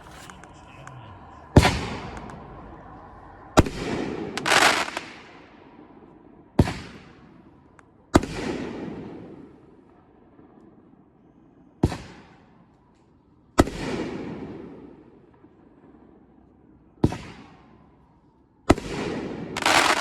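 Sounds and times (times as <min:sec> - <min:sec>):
noisy firework burst: 0:00.0 - 0:06.0, 0:18.9 - 0:20.0
firework booms: 0:01.6 - 0:05.8.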